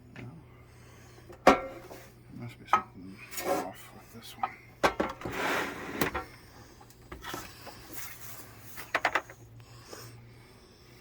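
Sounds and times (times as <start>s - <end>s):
table leg scraping: 5.1s - 6.3s.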